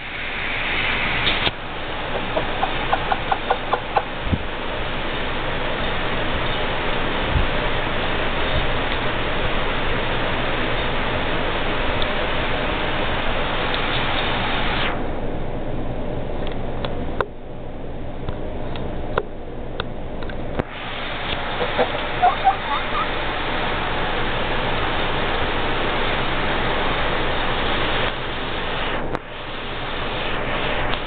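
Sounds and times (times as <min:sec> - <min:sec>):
steady rushing noise: 0:00.0 - 0:31.0
young cockerel calling: 0:02.1 - 0:04.1, 0:21.6 - 0:23.2.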